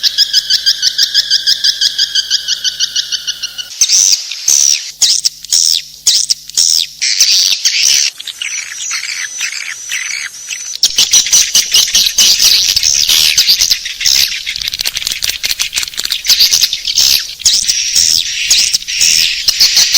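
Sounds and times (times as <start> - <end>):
swiftlets chirping: 8.3 - 19.9.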